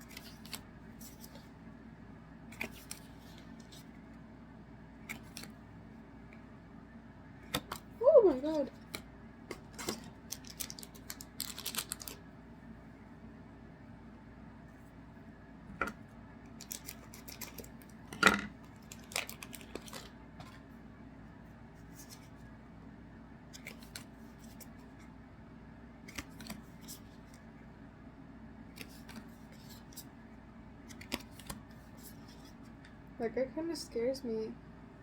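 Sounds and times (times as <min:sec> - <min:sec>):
trading cards clicking and rustling: 0:02.5 - 0:03.9, 0:07.5 - 0:12.2, 0:16.6 - 0:20.6, 0:23.6 - 0:24.8, 0:26.1 - 0:27.3, 0:28.7 - 0:30.1, 0:30.9 - 0:32.6.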